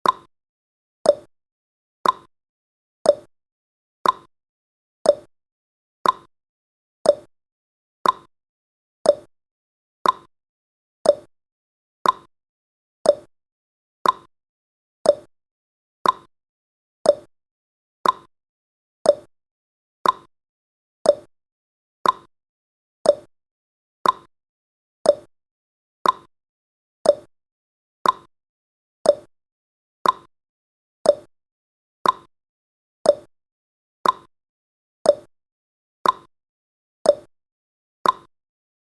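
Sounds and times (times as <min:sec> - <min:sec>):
timer ticking clicks: 0:00.0 - 0:00.3, 0:01.0 - 0:01.3, 0:02.0 - 0:02.3, 0:03.0 - 0:03.3, 0:04.0 - 0:04.3, 0:05.0 - 0:05.3, 0:06.0 - 0:06.3, 0:07.0 - 0:07.3, 0:08.0 - 0:08.3, 0:09.0 - 0:09.3, 0:10.0 - 0:10.3, 0:11.0 - 0:11.3, 0:12.0 - 0:12.3, 0:13.0 - 0:13.3, 0:14.0 - 0:14.3, 0:15.0 - 0:15.3, 0:16.0 - 0:16.3, 0:17.0 - 0:17.3, 0:18.0 - 0:18.3, 0:19.0 - 0:19.3, 0:20.0 - 0:20.3, 0:21.0 - 0:21.3, 0:22.0 - 0:22.3, 0:23.0 - 0:23.3, 0:24.0 - 0:24.3, 0:25.0 - 0:25.3, 0:26.0 - 0:26.3, 0:27.0 - 0:27.3, 0:28.0 - 0:28.3, 0:29.0 - 0:29.3, 0:30.0 - 0:30.3, 0:31.0 - 0:31.3, 0:32.0 - 0:32.3, 0:33.0 - 0:33.3, 0:34.0 - 0:34.3, 0:35.0 - 0:35.3, 0:36.0 - 0:36.3, 0:37.0 - 0:37.3, 0:38.0 - 0:38.3.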